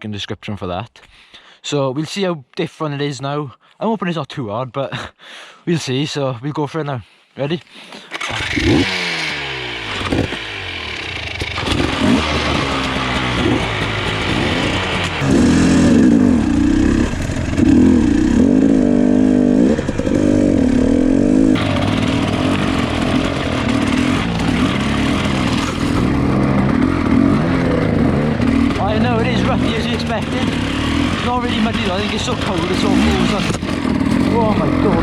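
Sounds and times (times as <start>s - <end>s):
dirt bike engine revving: 8.2s - 35.0s.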